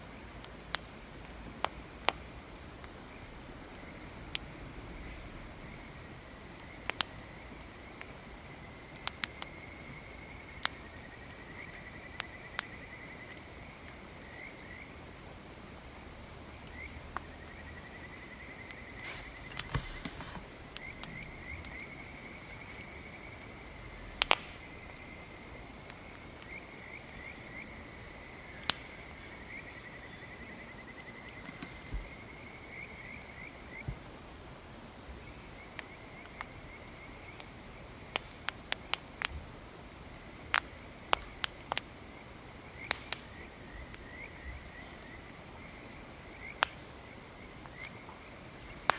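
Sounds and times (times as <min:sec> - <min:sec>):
campfire crackling and popping: 0:00.4 - 0:03.0, 0:18.5 - 0:30.0, 0:35.7 - 0:48.9
insects trilling: 0:03.1 - 0:33.9
brief rustle: 0:19.0 - 0:23.0.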